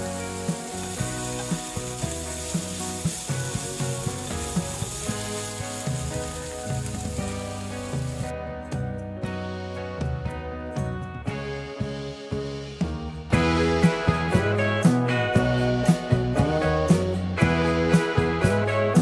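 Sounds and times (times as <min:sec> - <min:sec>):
food sizzling in a frying pan: 0:00.0 - 0:08.3
background music: 0:00.0 - 0:19.0.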